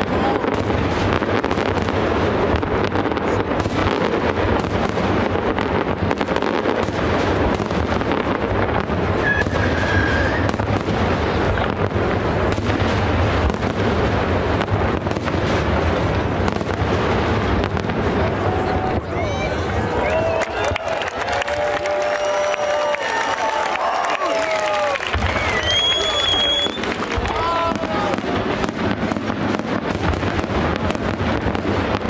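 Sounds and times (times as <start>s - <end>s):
fireworks bursting and crackling: 0.0s - 32.0s.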